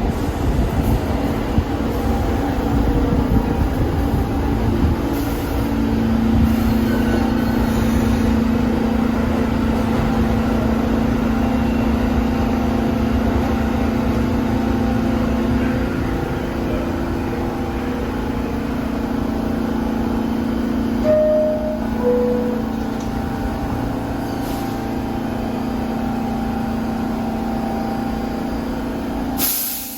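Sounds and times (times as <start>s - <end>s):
subway train rumbling: 0.0s - 29.9s
two-note door chime: 21.0s - 23.0s.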